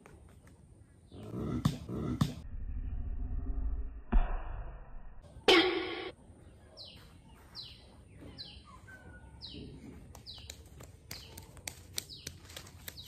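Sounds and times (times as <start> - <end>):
bird chirping: 5.2 - 13.0.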